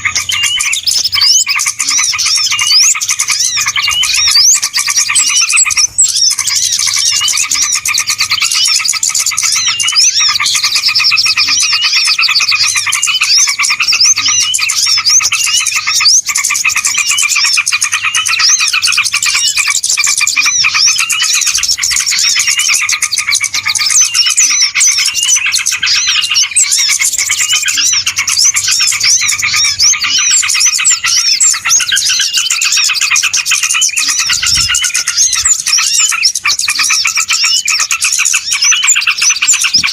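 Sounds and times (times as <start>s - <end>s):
chorus of small birds chirping: 0.0s - 39.9s.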